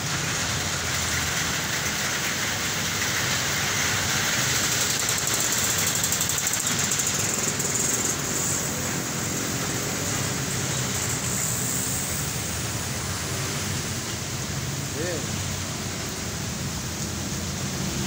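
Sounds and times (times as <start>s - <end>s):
heavy rain hissing: 0.0s - 18.0s
road traffic: 0.0s - 18.0s
vehicle engine rumbling: 0.0s - 18.0s.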